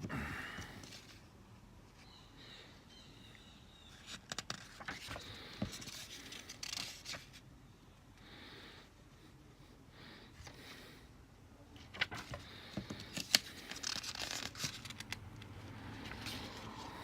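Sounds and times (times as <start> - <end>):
paper pages rustling: 4.0 - 7.4, 11.8 - 17.0.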